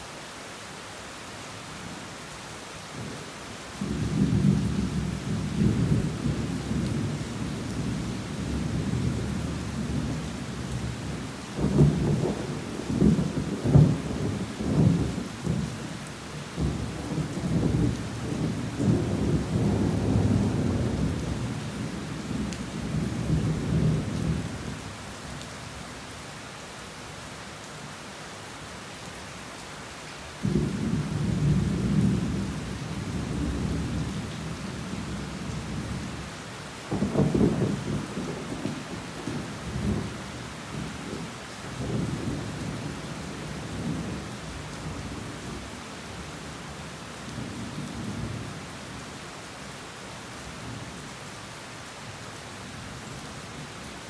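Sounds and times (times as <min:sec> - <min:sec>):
heavy rain: 0:00.0 - 0:54.0
thunder rumbling and crackling: 0:16.6 - 0:24.7, 0:30.4 - 0:36.2, 0:36.9 - 0:45.6.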